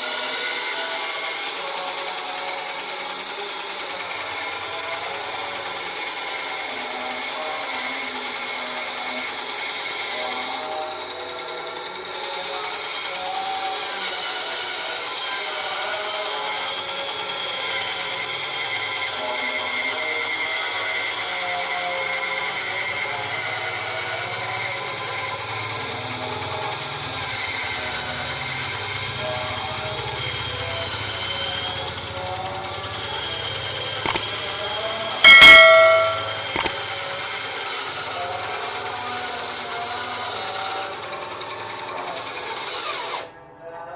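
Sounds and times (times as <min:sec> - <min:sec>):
bandsaw humming: 0:30.8 - 0:36.7
loud metallic clang: 0:35.2 - 0:36.7
bandsaw cutting wood: 0:40.2 - 0:43.3.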